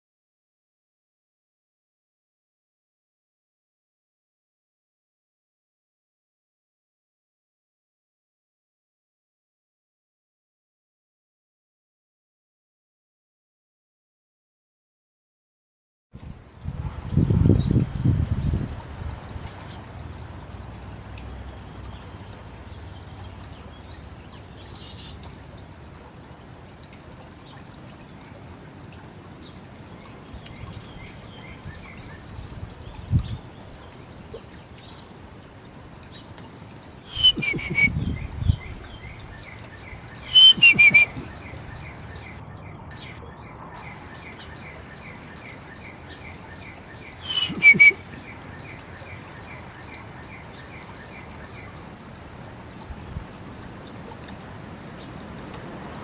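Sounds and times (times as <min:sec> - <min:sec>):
background hiss: 0:30.3 - 0:42.4
bird calls with falling notes: 0:37.1 - 0:51.8.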